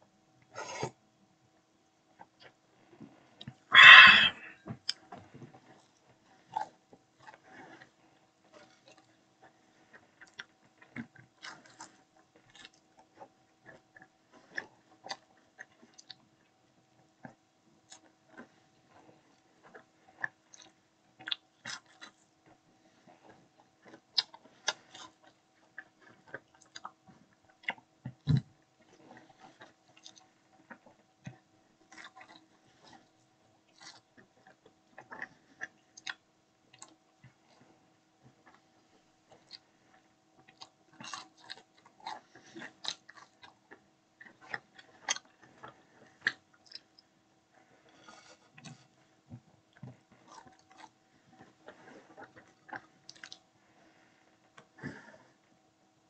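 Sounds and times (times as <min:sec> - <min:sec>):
crunchy bite: 0:03.8 - 0:04.5
chewing clicks and mouth smacks: 0:10.2 - 0:16.2, 0:19.6 - 0:22.2, 0:23.8 - 0:28.4, 0:29.0 - 0:33.0, 0:33.7 - 0:37.4, 0:40.4 - 0:47.1, 0:49.7 - 0:53.4.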